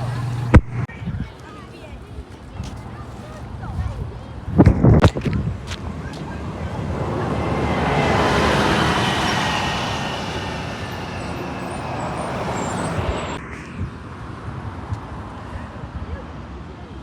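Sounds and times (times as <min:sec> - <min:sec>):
vehicle passing by: 0:05.7 - 0:13.5.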